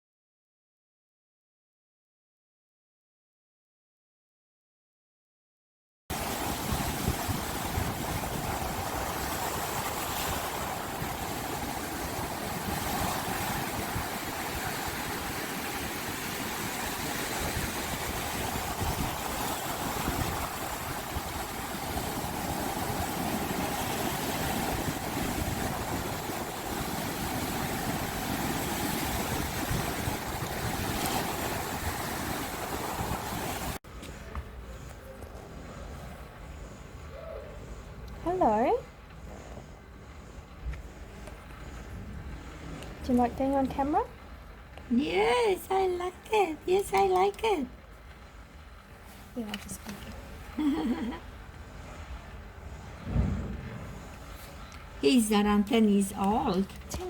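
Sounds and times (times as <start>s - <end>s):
steady rushing noise: 6.1s - 33.8s, 50.0s - 57.0s.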